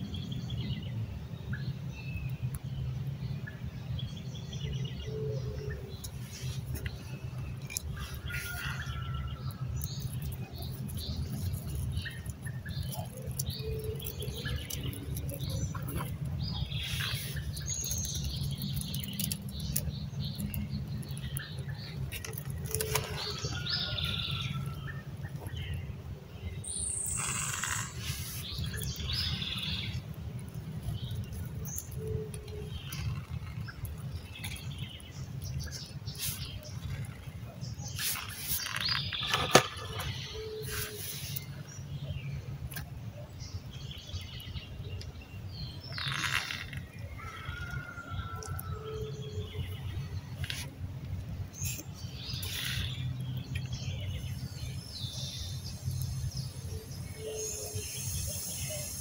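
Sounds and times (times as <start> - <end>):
small birds chirping: 0.0 - 59.0
crackles and clicks: 5.6 - 25.8, 27.0 - 41.8, 42.6 - 42.9, 45.7 - 47.8, 49.4 - 56.6.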